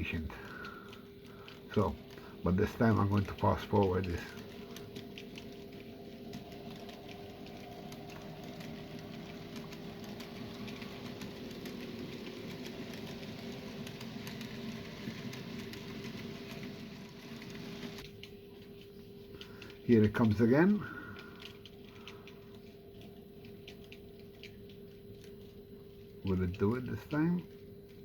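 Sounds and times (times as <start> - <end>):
wheels clicking on track: 1.6 - 18.0
model train motor hum: 6.3 - 18.0.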